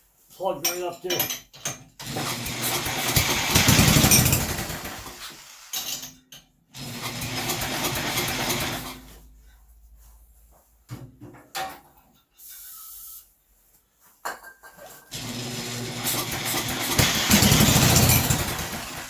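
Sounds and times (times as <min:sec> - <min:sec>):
small engine cranking and firing: 0:02.0 - 0:05.8, 0:06.8 - 0:09.0, 0:15.2 - 0:19.0.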